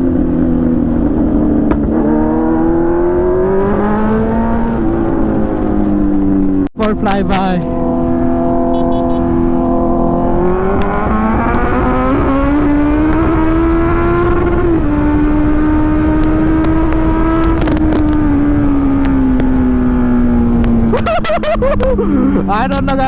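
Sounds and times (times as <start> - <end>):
motorcycle engine revving: 0.0 - 22.9
wind noise: 0.0 - 23.0.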